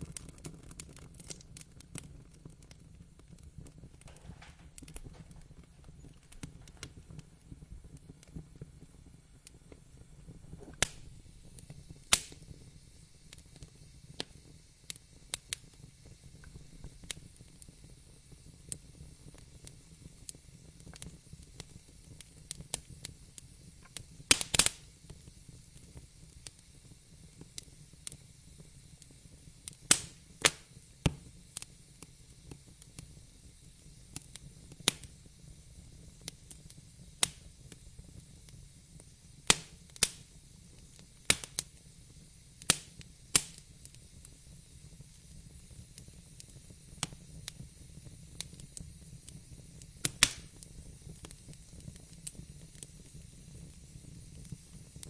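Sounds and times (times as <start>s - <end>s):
soft low rumble and hiss: 0.0s - 55.0s
wood fire crackling: 0.0s - 55.0s.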